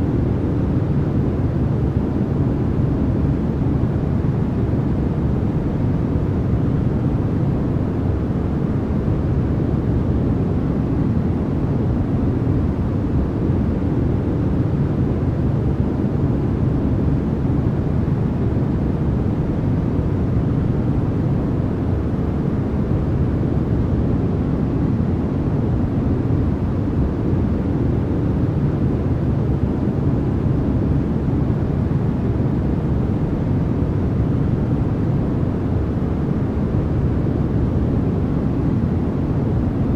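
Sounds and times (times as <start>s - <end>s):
deep white noise hiss: 0.0s - 39.9s.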